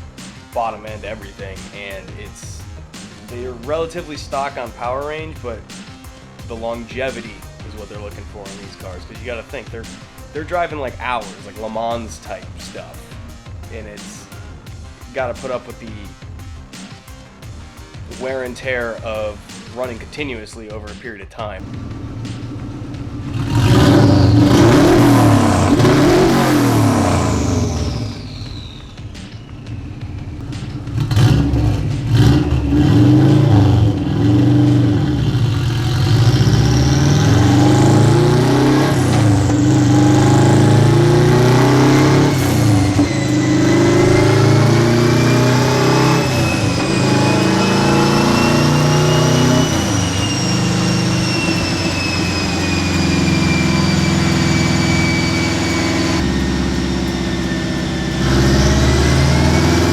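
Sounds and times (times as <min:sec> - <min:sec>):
high whine: 0:21.6 - 0:59.9
race car engine revving: 0:21.6 - 0:59.9.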